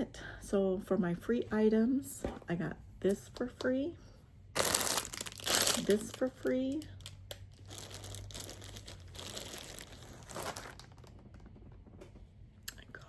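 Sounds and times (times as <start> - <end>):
crinkly packaging rustling: 4.6 - 11.5.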